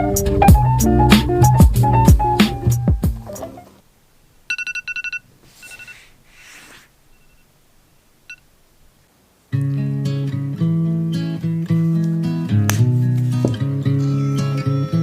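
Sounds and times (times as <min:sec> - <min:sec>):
background music: 0:00.0 - 0:03.7, 0:12.3 - 0:15.0
short electronic beeps: 0:04.5 - 0:06.1, 0:07.1 - 0:07.5.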